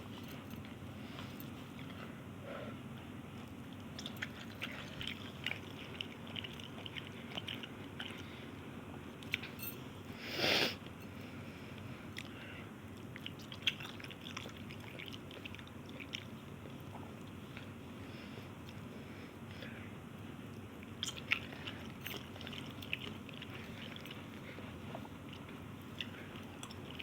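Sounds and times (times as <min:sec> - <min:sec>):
person chewing noodles: 0:03.4 - 0:09.6, 0:11.8 - 0:19.1, 0:20.6 - 0:27.0.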